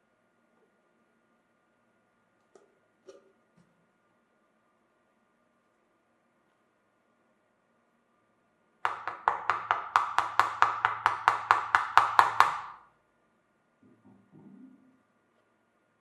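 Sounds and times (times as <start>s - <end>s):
rapid sharp ringing knocks: 8.9s - 12.9s.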